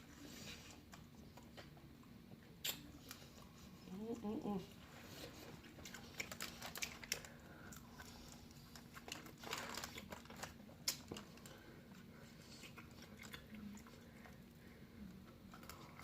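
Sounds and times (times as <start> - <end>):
chewing and biting food: 5.2 - 16.0.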